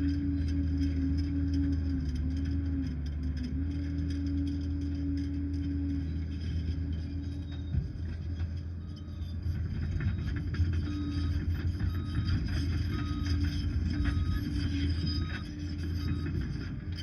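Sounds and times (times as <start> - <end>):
diesel engine running: 0.0 - 17.0
alarm beeping: 8.8 - 16.5.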